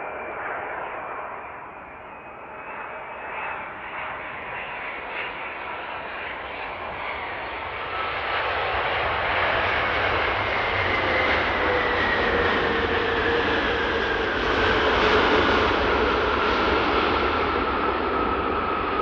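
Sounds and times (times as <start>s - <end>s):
jet airliner engines: 0.0s - 19.0s.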